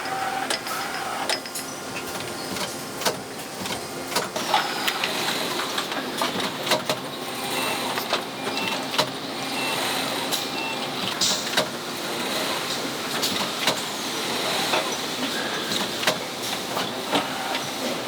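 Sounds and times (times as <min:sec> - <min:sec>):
assembly line machinery running: 0:02.0 - 0:18.0.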